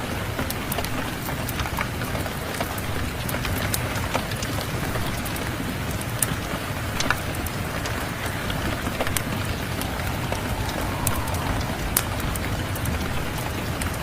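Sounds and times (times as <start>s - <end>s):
steady rain hiss: 0.0s - 14.0s
wood fire crackling: 9.1s - 13.0s.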